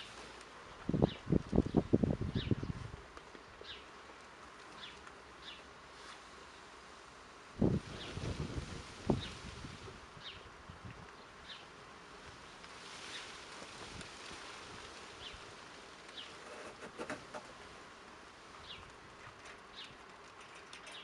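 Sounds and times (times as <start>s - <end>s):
small bird chirping: 18.6s - 21.0s.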